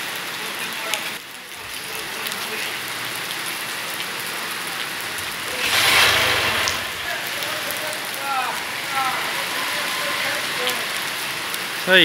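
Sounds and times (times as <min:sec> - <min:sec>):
heavy rain on flooded street: 0:00.0 - 0:12.0
rushing water swell: 0:02.8 - 0:12.0.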